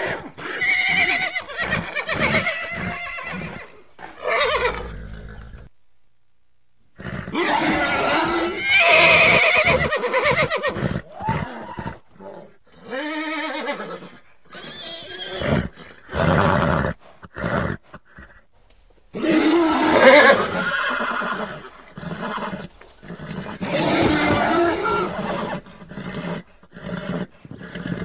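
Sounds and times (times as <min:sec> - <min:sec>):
horses neighing: 0:00.0 - 0:05.7, 0:07.0 - 0:18.4, 0:19.1 - 0:28.0.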